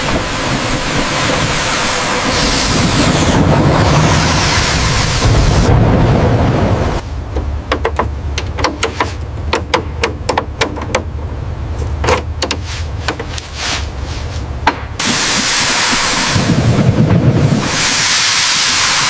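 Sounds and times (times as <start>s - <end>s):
loud rushing noise: 0.0s - 7.3s, 12.6s - 19.0s
sharp knocks and taps: 7.3s - 11.1s, 12.0s - 13.5s, 14.6s - 14.9s.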